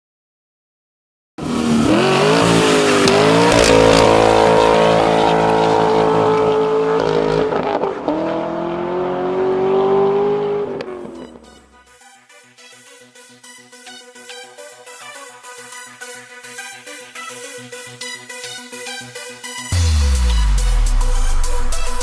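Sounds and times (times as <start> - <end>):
car engine revving hard: 1.4 - 11.2
music: 1.5 - 7.5, 10.8 - 22.0.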